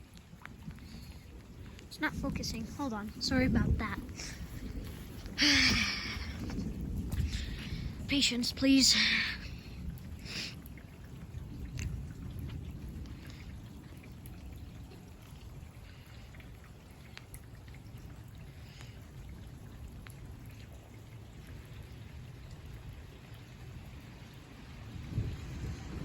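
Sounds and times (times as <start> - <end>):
sharp water drips: 0.0 - 26.0
steady rain falling: 0.0 - 26.0.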